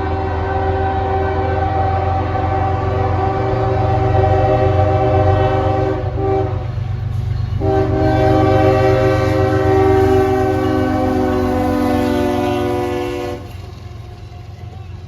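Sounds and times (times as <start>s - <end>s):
locomotive air horn blast: 0.0s - 6.8s, 7.5s - 13.6s
train rumbling: 0.0s - 15.0s.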